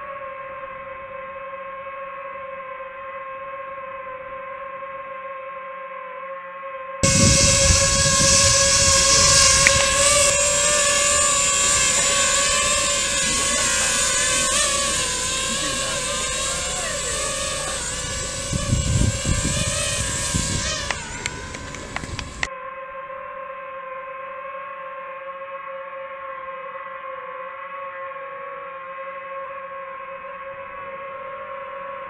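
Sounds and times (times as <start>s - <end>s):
boat engine whining: 7.0s - 22.5s.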